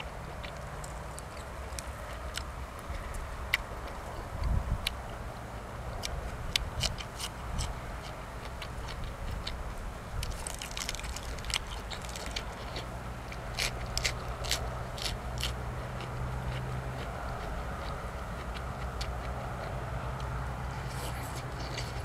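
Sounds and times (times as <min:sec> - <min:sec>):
person chewing crunchy food: 0:06.0 - 0:22.0.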